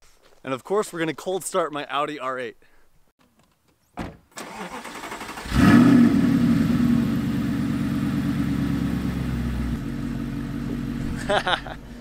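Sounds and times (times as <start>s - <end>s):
car engine revving and idling: 5.1s - 12.0s.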